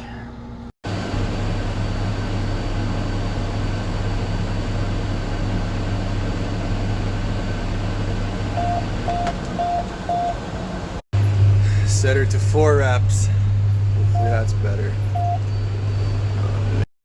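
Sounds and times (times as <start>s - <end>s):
low mechanical hum: 0.0s - 16.9s
short warning beeps: 14.1s - 14.5s, 15.1s - 15.5s.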